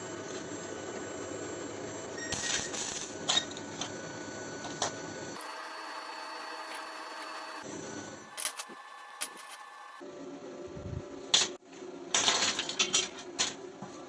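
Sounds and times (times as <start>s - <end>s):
steady hum: 0.0s - 14.0s
metal parts clicking and clattering: 11.3s - 13.6s.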